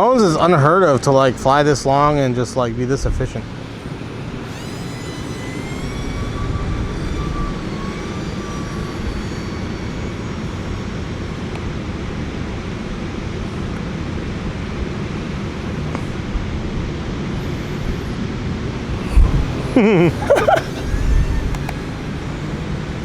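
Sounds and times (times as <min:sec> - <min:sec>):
model plane motor whining: 0:03.4 - 0:16.1, 0:16.7 - 0:23.0
wind rumble on microphone: 0:18.9 - 0:20.1.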